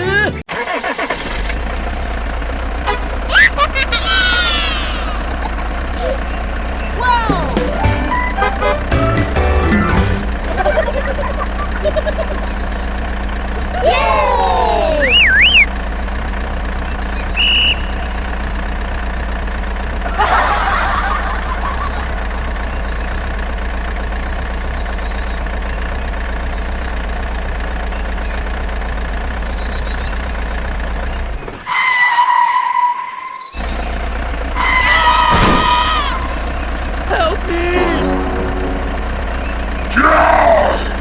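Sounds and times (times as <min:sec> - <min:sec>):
engine humming: 0:00.0 - 0:41.0
bird chirps: 0:15.0 - 0:18.6, 0:27.8 - 0:31.3, 0:33.0 - 0:33.9
steady two-tone sound: 0:37.6 - 0:40.3.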